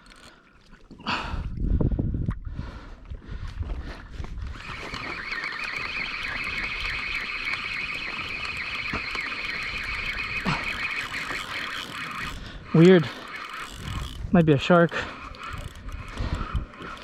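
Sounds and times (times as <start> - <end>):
fishing reel whining: 0.0 - 0.4, 4.4 - 17.0.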